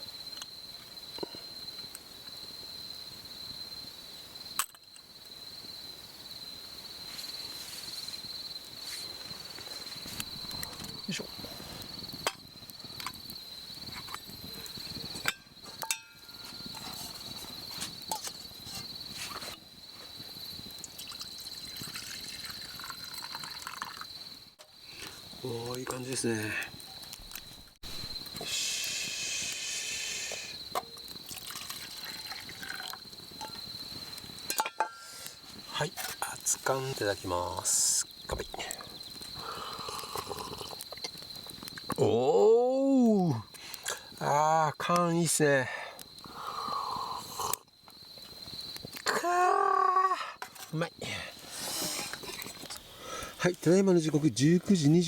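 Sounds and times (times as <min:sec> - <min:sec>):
crickets chirping: 0:00.0 - 0:55.0
liquid pouring into a cup: 0:20.9 - 0:24.1, 0:31.3 - 0:33.0.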